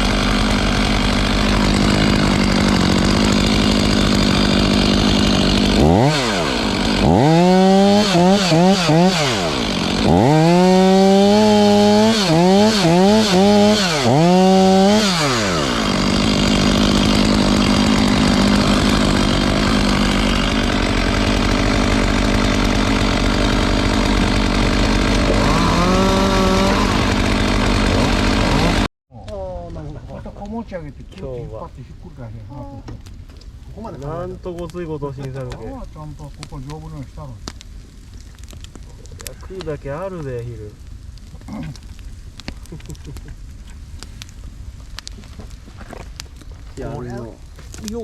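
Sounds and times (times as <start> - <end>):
chainsaw idling and revving: 0.0 - 28.9.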